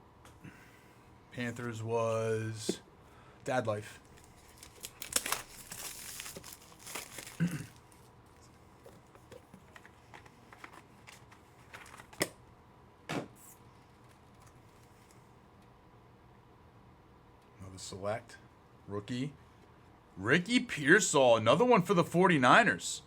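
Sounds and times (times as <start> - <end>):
foil wrapper crinkling and tearing: 4.0 - 8.4.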